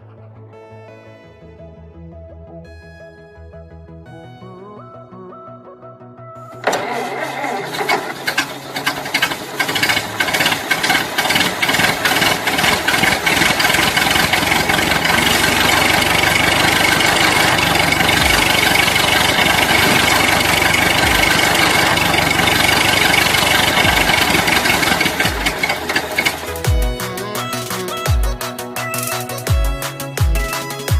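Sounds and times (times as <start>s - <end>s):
small motor rattling: 6.6s - 27.1s.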